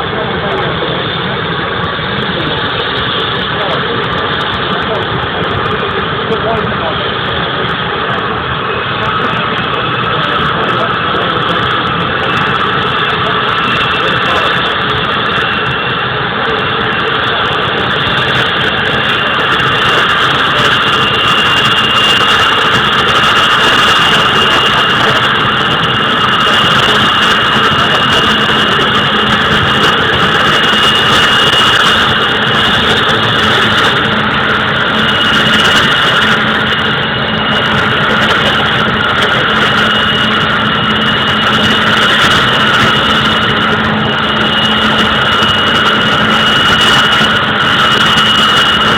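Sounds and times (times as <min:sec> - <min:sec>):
turboprop engines whining: 0:00.0 - 0:48.9.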